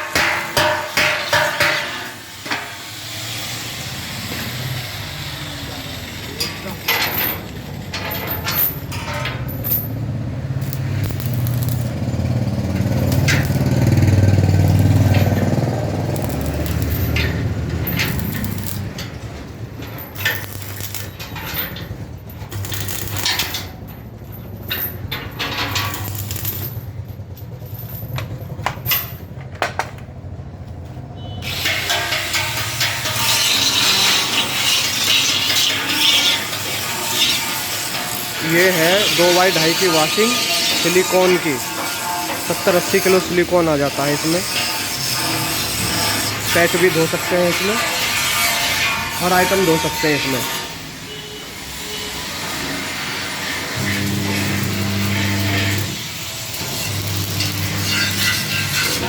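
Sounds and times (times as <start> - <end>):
washing machine motor humming: 53.8 - 57.8.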